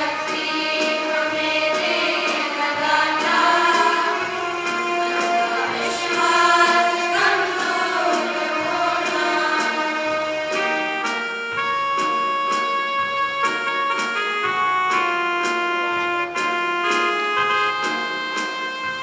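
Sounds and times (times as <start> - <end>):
group of voices singing: 0.0 - 10.8
instrumental accompaniment with beat: 0.0 - 19.0.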